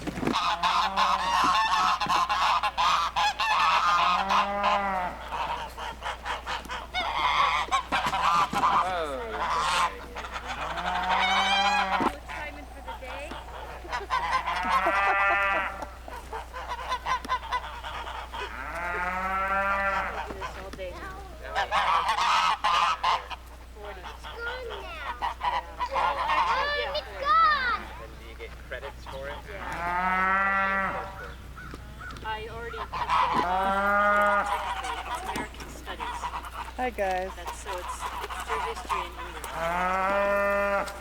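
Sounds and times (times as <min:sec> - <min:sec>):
geese honking: 0:00.0 - 0:41.0.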